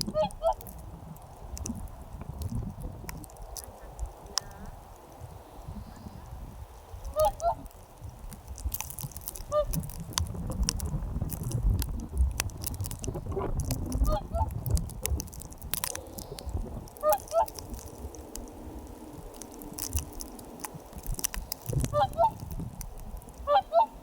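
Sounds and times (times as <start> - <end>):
geese honking: 0.0 - 0.6, 7.1 - 7.7, 21.9 - 22.4, 23.4 - 24.0
sharp clicks: 0.0 - 5.3, 7.0 - 23.6
low rumbling: 0.0 - 24.0.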